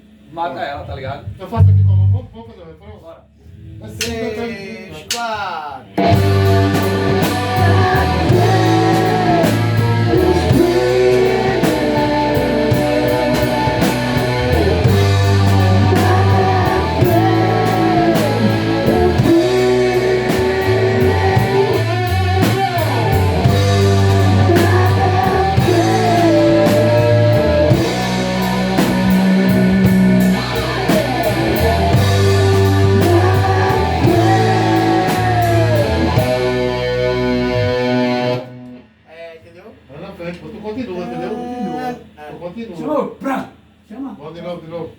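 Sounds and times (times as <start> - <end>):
bass: 0.0 - 44.9
steady drum beat: 4.0 - 38.4
guitar: 5.8 - 42.2
person singing: 6.0 - 38.5.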